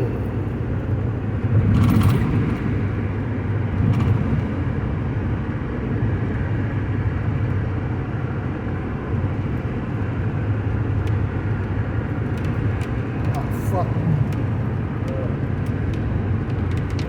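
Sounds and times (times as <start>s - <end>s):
road and engine rumble in cabin: 0.0s - 17.0s.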